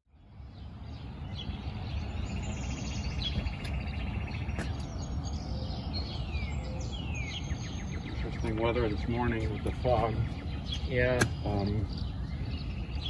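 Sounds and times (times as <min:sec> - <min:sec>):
birds singing: 0:00.1 - 0:13.0.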